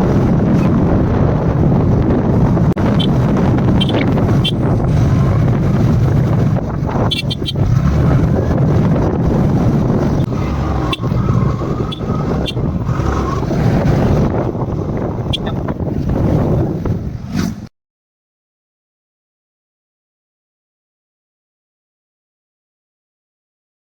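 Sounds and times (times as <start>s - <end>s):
wind buffeting microphone: 0.0s - 17.7s.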